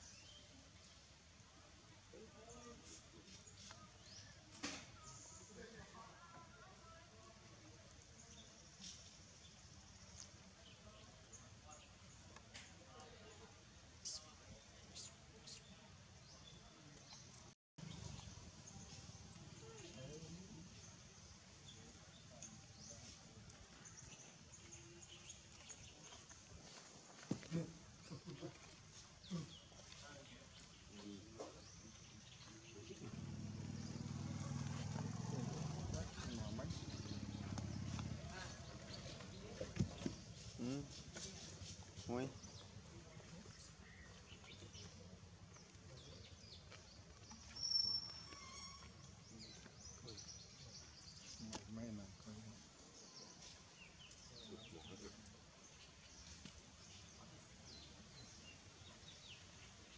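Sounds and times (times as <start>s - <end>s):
small birds chirping: 2.1s - 59.9s
small bird chirps: 46.0s - 51.6s.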